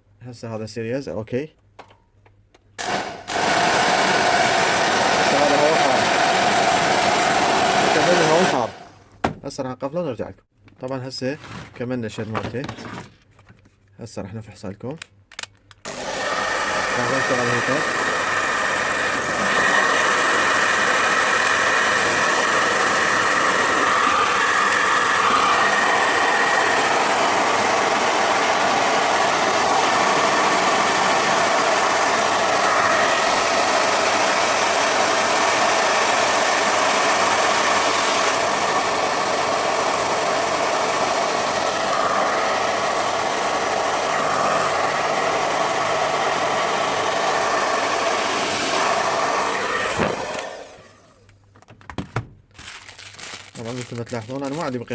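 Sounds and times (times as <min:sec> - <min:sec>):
hair dryer running: 0:02.8 - 0:08.9, 0:15.8 - 0:51.2.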